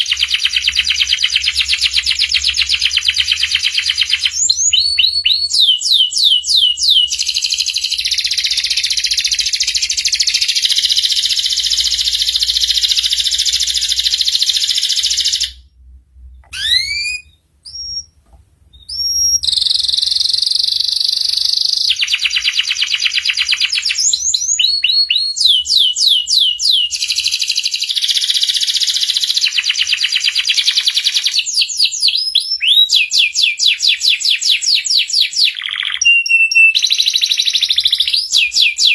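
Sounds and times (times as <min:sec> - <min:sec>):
canary singing trills: 0:00.0 - 0:15.6, 0:16.4 - 0:38.9
single bird chirps: 0:16.3 - 0:22.5.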